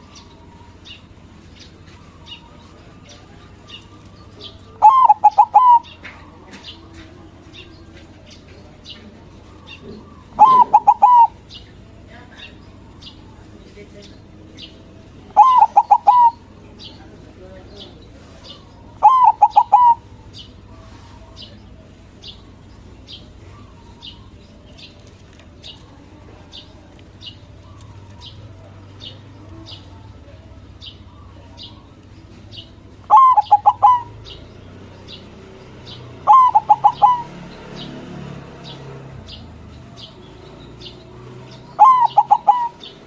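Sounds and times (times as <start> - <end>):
dove cooing in stuttering notes: 4.6 - 6.3, 9.7 - 11.5, 15.3 - 16.6, 19.0 - 20.2, 33.0 - 34.6, 35.9 - 39.1, 41.8 - 43.0.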